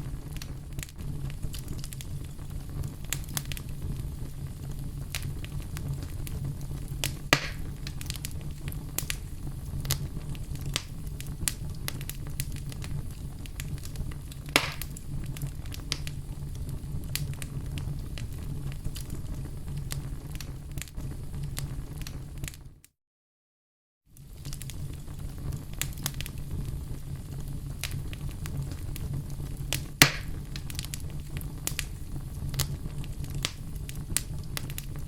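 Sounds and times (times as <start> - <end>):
fire flames rumbling: 0.0 - 22.7, 24.1 - 35.0
fire crackling and popping: 0.0 - 22.8, 24.1 - 35.0.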